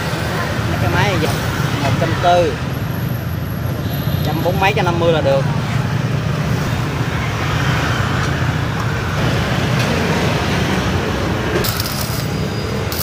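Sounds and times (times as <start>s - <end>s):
welding arc crackling and hissing: 11.6s - 13.0s.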